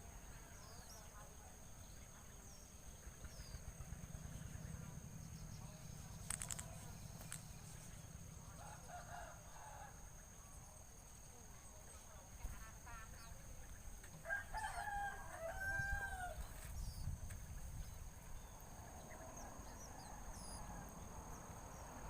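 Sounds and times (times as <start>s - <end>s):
small birds chirping: 0.0s - 8.8s, 15.4s - 22.0s.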